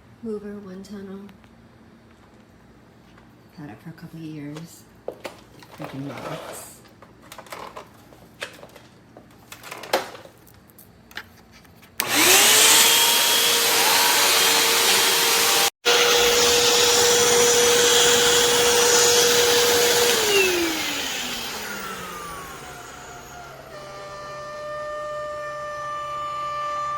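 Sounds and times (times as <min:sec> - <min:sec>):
vacuum cleaner motor whine: 0:12.0 - 0:26.9.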